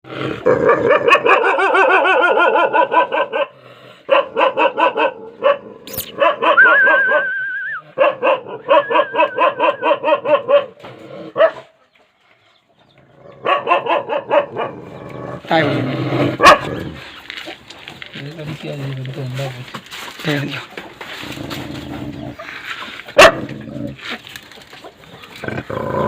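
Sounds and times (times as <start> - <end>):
dogs barking: 0.6 - 7.3, 7.9 - 11.8, 13.3 - 15.0, 16.3 - 17.0, 22.1 - 23.9.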